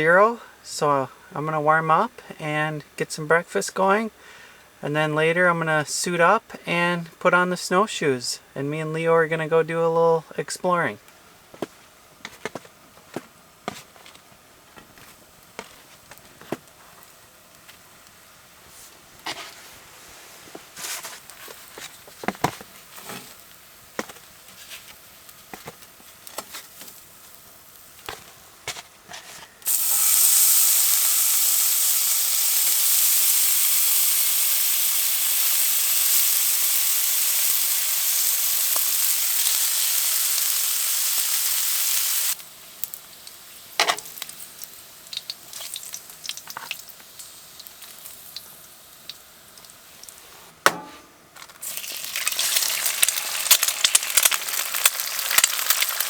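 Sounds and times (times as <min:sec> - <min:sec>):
food sizzling in a pan: 0:29.6 - 0:50.2, 0:51.6 - 0:56.0.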